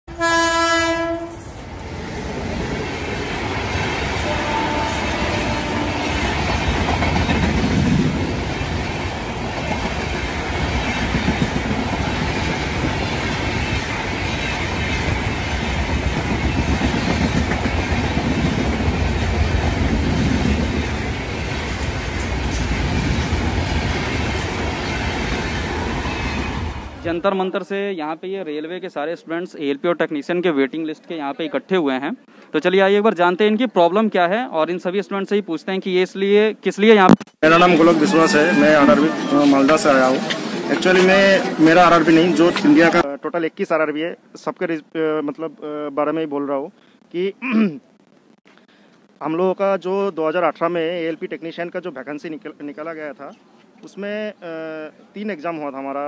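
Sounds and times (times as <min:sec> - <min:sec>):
locomotive horn blast: 0:00.1 - 0:01.5, 0:04.2 - 0:06.4
train wheels rumbling on rails: 0:00.9 - 0:27.1, 0:37.4 - 0:43.0.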